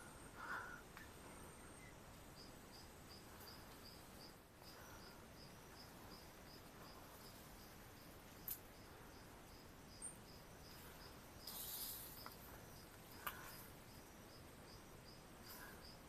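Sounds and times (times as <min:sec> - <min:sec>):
faint insect chirps: 0:00.0 - 0:16.0
high rustle: 0:11.4 - 0:12.5.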